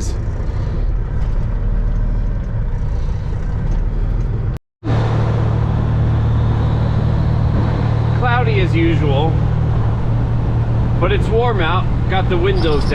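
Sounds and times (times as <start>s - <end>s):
road noise: 0.0s - 12.9s
truck engine drone: 0.0s - 12.9s.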